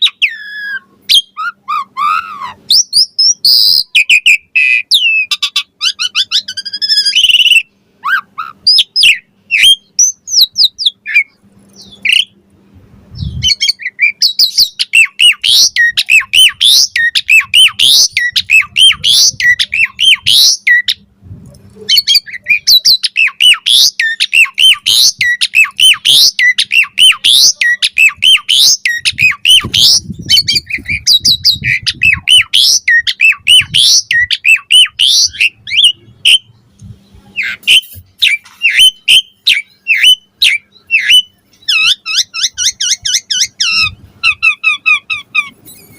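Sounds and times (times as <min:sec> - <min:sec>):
starling chattering song: 0:13.1 - 0:45.9.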